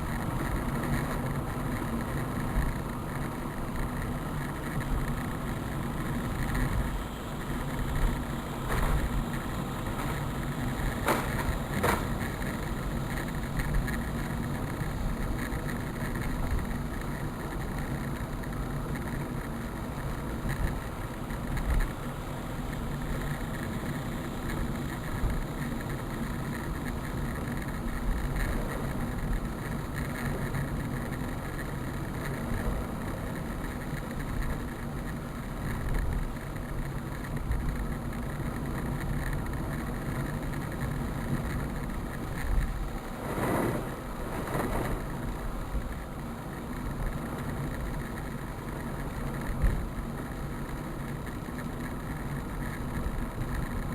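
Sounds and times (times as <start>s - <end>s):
vehicle engine running: 0.0s - 53.9s
rushing noise: 42.7s - 45.9s.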